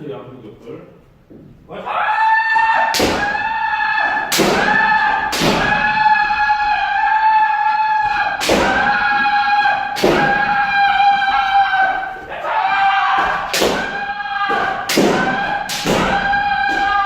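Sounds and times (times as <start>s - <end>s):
people shouting: 1.7s - 17.0s
bamboo swords striking helmets: 2.9s - 6.8s, 8.0s - 17.0s
stamping footsteps: 8.1s - 17.0s.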